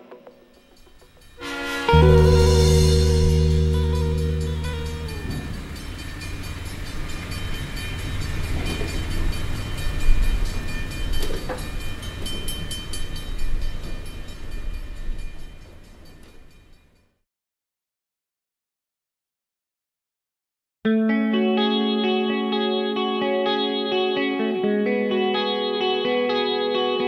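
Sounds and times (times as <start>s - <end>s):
music chord: 0.0s - 12.6s, 20.9s - 27.0s
train wheels rumbling on track: 0.5s - 17.0s.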